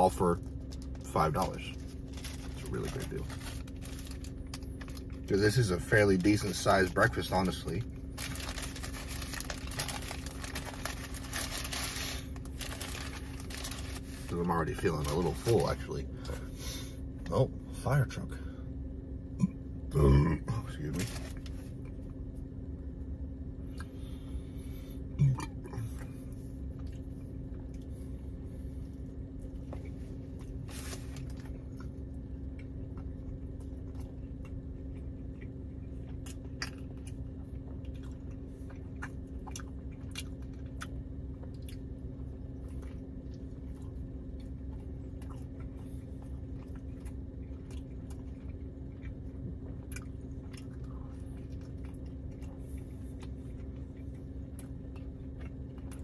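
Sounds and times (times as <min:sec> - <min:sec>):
chewing and biting food: 0:00.4 - 0:16.4, 0:25.2 - 0:56.0.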